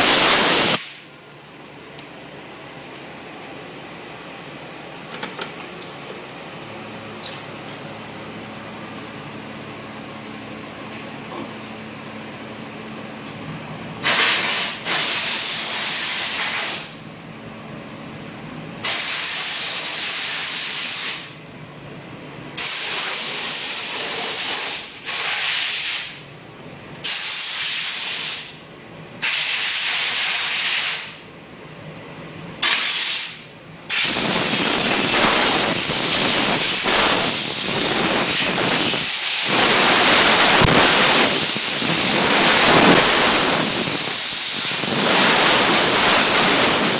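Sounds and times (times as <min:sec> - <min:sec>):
steam cleaner hissing: 0:00.0 - 0:01.1, 0:14.0 - 0:17.0, 0:18.8 - 0:21.3, 0:22.6 - 0:26.2, 0:27.0 - 0:28.6, 0:29.2 - 0:31.2, 0:32.6 - 0:46.9.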